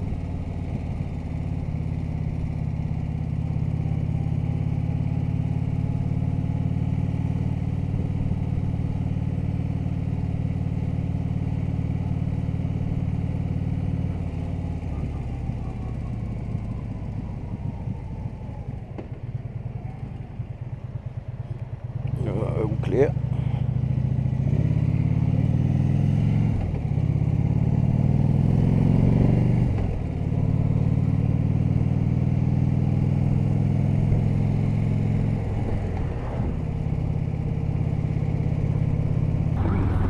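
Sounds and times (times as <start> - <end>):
motorcycle engine running: 0.0 - 18.6, 36.7 - 40.0.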